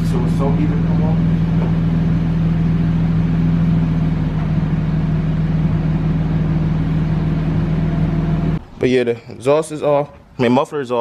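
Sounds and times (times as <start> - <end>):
car engine idling with loud exhaust: 0.0 - 8.6.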